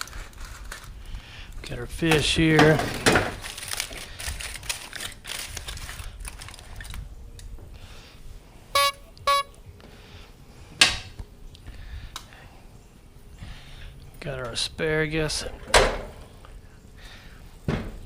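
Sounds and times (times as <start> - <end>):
short beeps: 8.8 - 9.5.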